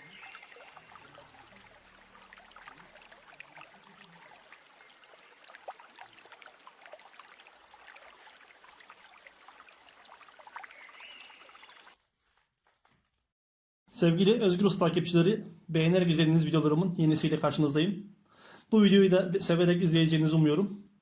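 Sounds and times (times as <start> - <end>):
bird whistled call: 0.0 - 1.4, 10.7 - 12.0
stream babbling over stones: 0.0 - 11.9.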